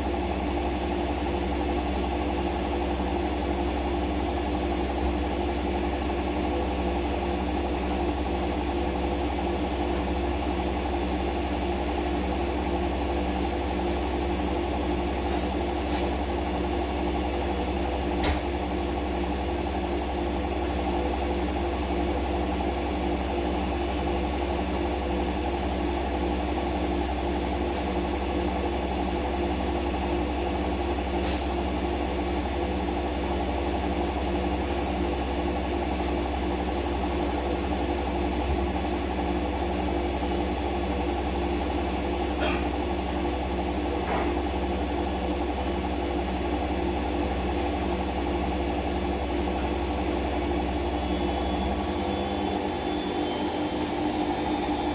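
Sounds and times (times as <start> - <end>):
washing machine spinning: 0.0 - 54.9.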